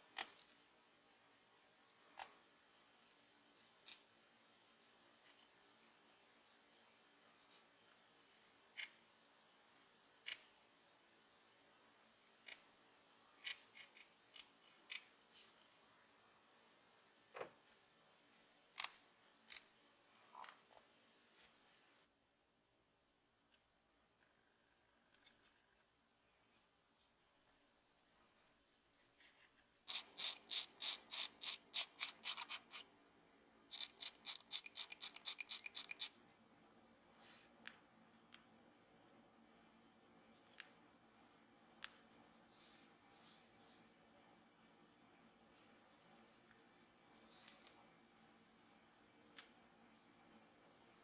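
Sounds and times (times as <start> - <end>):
hand tools clicking and snipping: 33.7 - 36.1.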